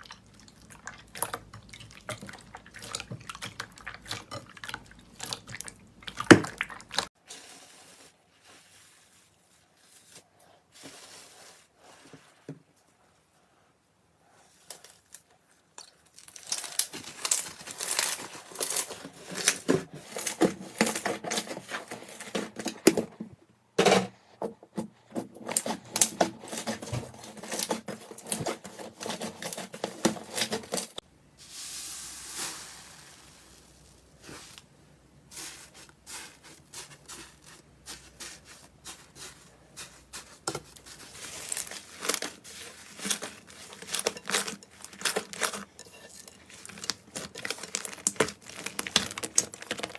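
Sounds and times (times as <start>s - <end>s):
soft steady hiss: 31.0s - 48.4s
slime crackling and popping: 46.8s - 49.9s.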